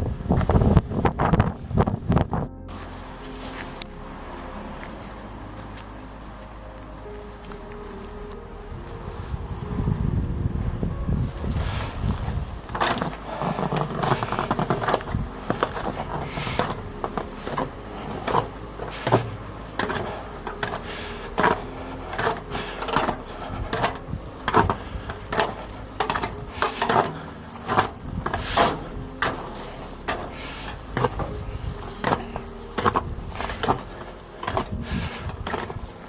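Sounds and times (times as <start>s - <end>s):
footsteps crunching on snow: 0.3s - 10.4s, 11.0s - 36.0s.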